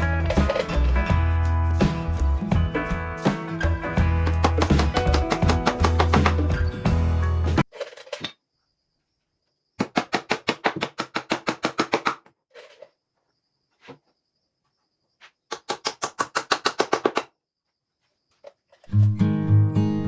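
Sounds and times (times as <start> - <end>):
rapid sharp knocks: 4.2 - 6.6.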